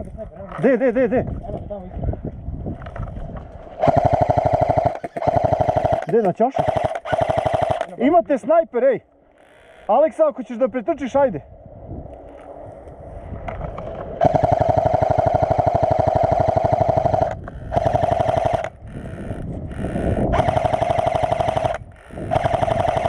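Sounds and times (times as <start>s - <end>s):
airsoft rifle firing full-auto bursts: 3.8s - 7.9s, 14.2s - 18.8s, 20.3s - 23.0s.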